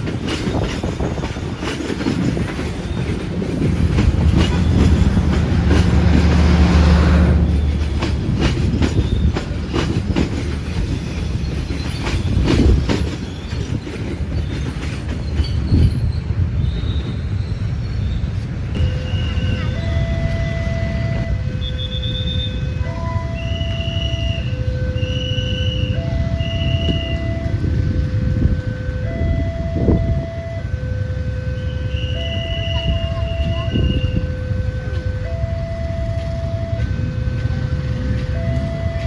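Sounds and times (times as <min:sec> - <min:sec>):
train wheels clacking over rail joints: 0:00.0 - 0:17.4.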